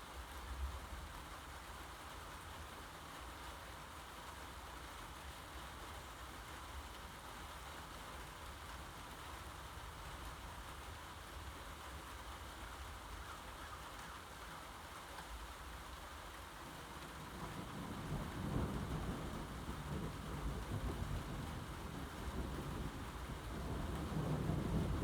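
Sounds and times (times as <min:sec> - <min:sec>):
steady rain falling: 0:00.0 - 0:25.0
low rumble of thunder: 0:16.7 - 0:25.0.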